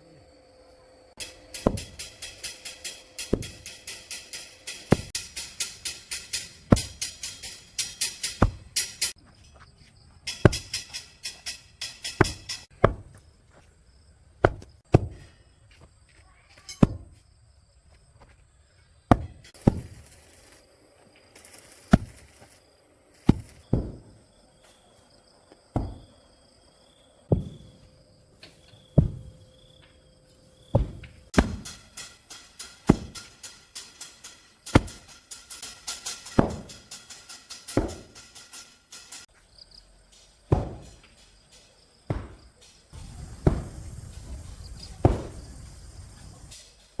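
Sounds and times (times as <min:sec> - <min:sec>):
digging tool chopping into soil: 0:08.4 - 0:08.8, 0:12.1 - 0:13.2, 0:14.4 - 0:15.3, 0:19.1 - 0:20.0, 0:21.9 - 0:22.3, 0:23.2 - 0:24.1, 0:25.8 - 0:26.1, 0:29.0 - 0:29.4, 0:30.8 - 0:31.8, 0:34.7 - 0:35.1, 0:40.5 - 0:41.1, 0:42.1 - 0:42.5, 0:45.0 - 0:45.5.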